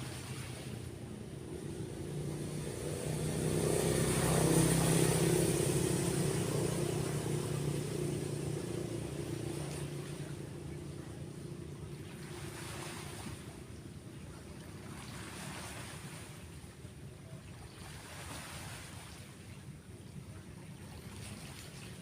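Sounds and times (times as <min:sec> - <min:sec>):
vehicle engine passing by: 0:00.2 - 0:13.7, 0:14.3 - 0:16.4.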